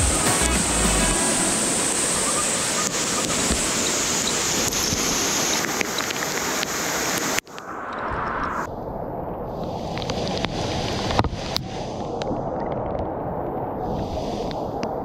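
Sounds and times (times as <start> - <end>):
mountain stream rushing: 0.0 - 8.6.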